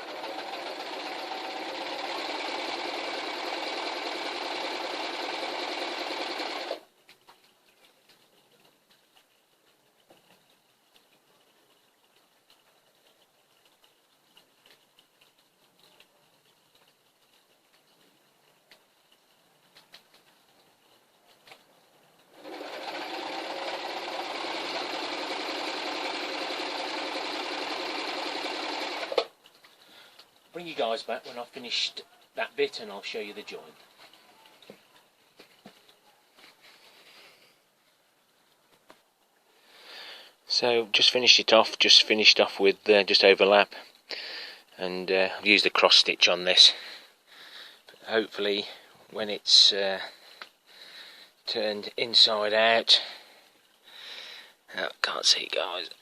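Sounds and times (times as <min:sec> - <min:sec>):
sewing machine running: 0:00.0 - 0:06.8, 0:22.3 - 0:29.3.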